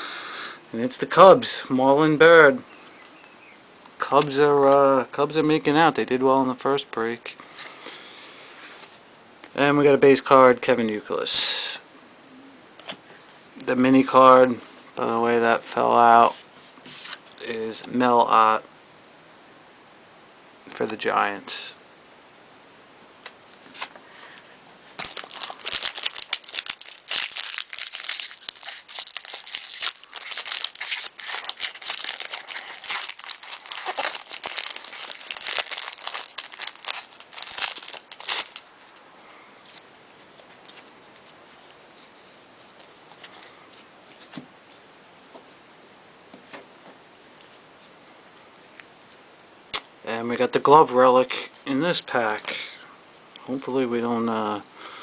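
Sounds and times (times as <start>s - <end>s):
wrapper crinkling and tearing: 25.0s - 39.0s.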